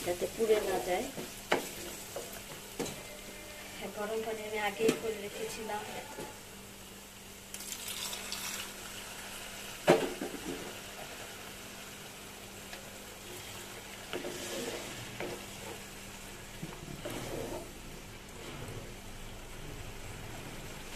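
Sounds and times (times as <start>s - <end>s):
paste sizzling in oil: 7.2s - 19.0s
knock on pan: 9.9s - 10.7s
wooden spatula scraping pan: 13.3s - 19.0s.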